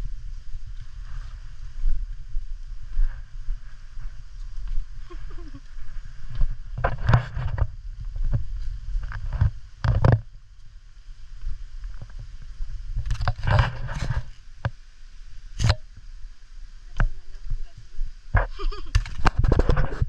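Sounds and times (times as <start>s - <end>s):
footsteps on a trail: 0.0s - 14.8s
wind rumble on microphone: 0.0s - 20.0s
scrapes and rustles: 2.9s - 10.3s, 11.8s - 14.8s, 16.9s - 20.0s.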